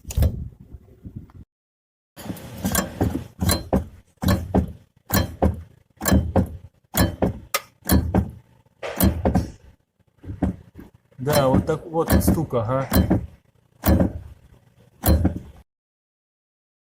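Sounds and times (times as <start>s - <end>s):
brake booster knocking: 2.2s - 14.4s, 15.0s - 15.6s.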